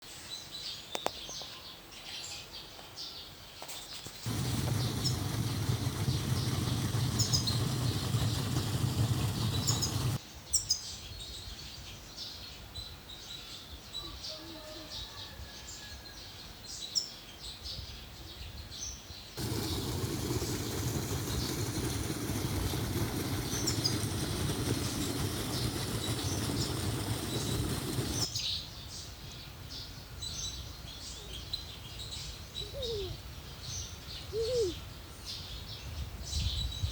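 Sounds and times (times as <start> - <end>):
small birds chirping: 0.3 - 14.5, 16.7 - 36.9
stream water rushing: 4.3 - 10.2, 19.4 - 28.3.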